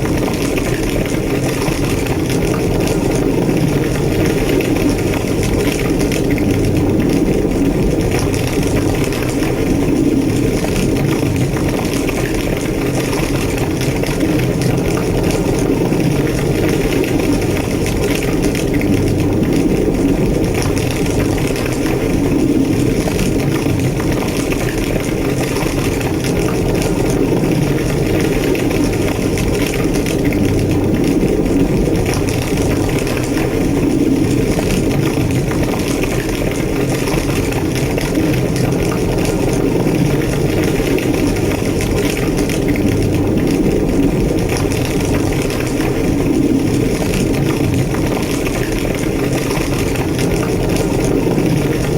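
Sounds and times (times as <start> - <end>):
fire crackling: 0.0 - 51.9
large fire roaring: 0.0 - 51.9.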